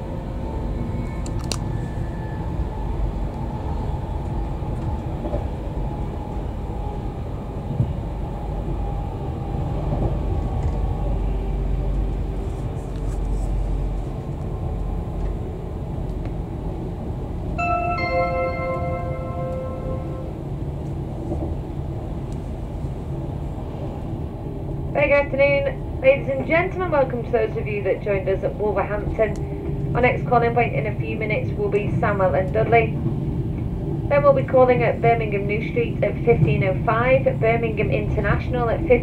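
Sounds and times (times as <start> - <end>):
train wheels rumbling on track: 0.0 - 39.0
onboard bell-like chime: 17.6 - 20.3.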